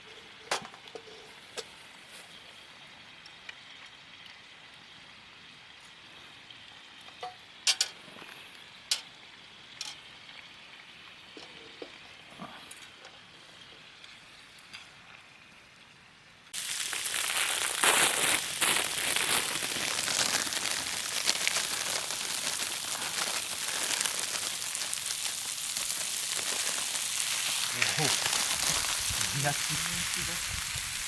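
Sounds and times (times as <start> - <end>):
food sizzling in a hot pan: 16.6 - 31.0.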